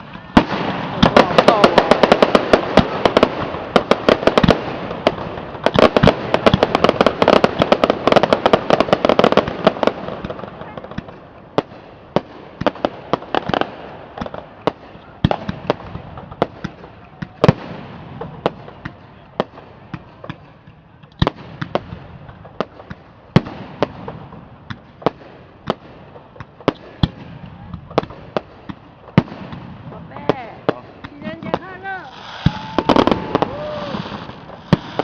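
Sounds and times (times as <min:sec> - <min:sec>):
fireworks bursting with sharp bangs: 0:00.0 - 0:35.0.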